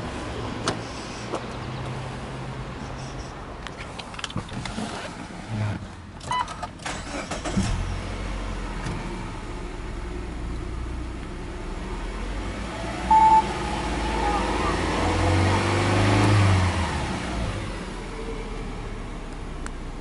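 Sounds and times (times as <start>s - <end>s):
engine starter clicks: 6.2s - 7.9s
short loud beep: 13.1s - 13.6s.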